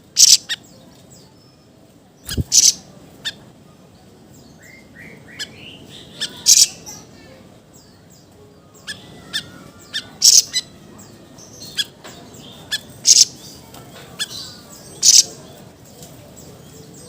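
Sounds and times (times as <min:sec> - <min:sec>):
songbird calling in sharp bursts: 0:00.1 - 0:00.7, 0:02.2 - 0:03.4, 0:04.7 - 0:07.1, 0:08.8 - 0:10.8, 0:11.4 - 0:13.6, 0:14.2 - 0:15.4.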